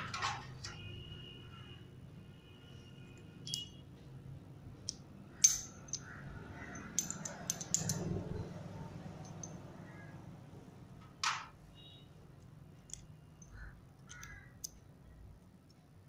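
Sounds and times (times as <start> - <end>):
metal gear parts clinking: 3.4 - 3.8, 5.4 - 8.4.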